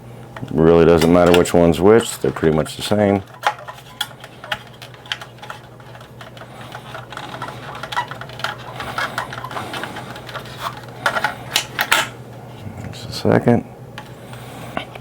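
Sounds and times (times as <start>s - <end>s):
steady low hum: 0.0s - 15.0s
plastic toy parts clicking: 0.4s - 12.1s.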